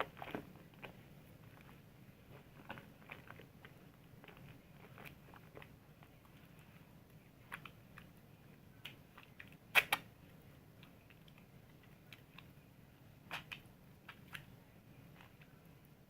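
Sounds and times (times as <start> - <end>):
soap being lathered: 0.0 - 10.0.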